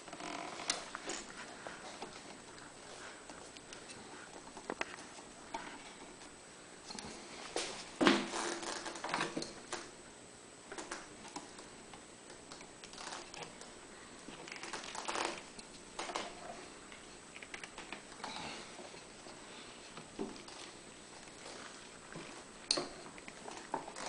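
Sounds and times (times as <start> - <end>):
rubber hose scraping and rubbing: 8.2 - 9.3, 14.3 - 16.7.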